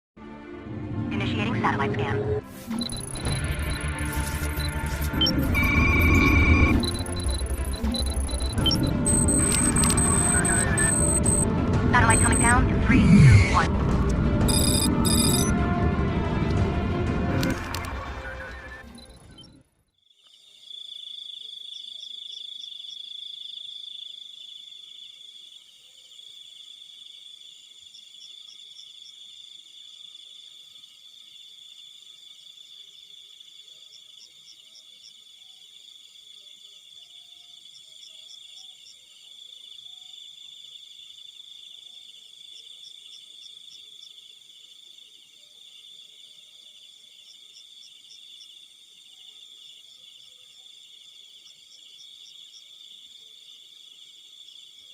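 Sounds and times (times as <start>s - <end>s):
high-pitched cricket trill: 2.6s - 11.5s, 14.5s - 15.5s
rapid insect chirps: 19.9s - 54.9s.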